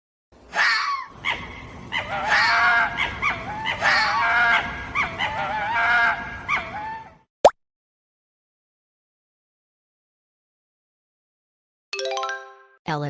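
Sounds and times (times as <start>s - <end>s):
fox yelping: 0.5s - 7.2s.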